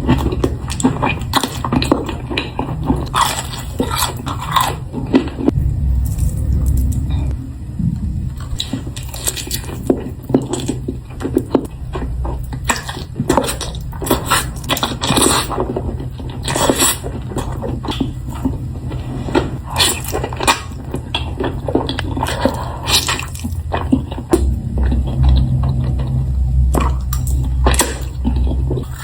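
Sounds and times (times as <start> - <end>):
wet chewing and smacking: 0.0 - 7.0, 8.4 - 19.0, 19.7 - 29.0
steady low hum: 0.0 - 29.0.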